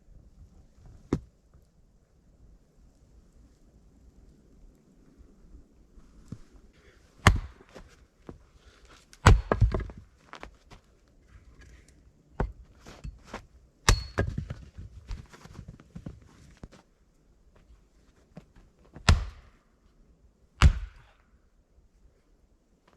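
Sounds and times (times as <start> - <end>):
rustling: 14.3 - 17.0.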